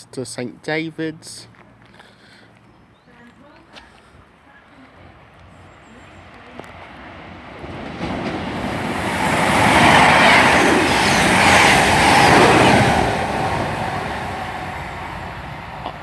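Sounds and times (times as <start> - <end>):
diesel train passing: 4.3 - 16.0.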